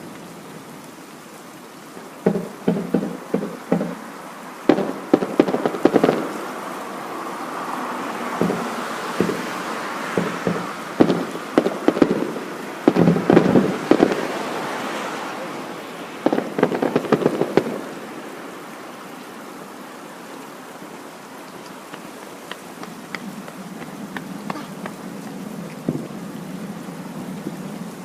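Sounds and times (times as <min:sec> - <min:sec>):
faint fireworks hiss: 0:00.0 - 0:28.0
fireworks bursting and crackling: 0:02.2 - 0:07.0, 0:08.2 - 0:18.4, 0:21.5 - 0:26.2.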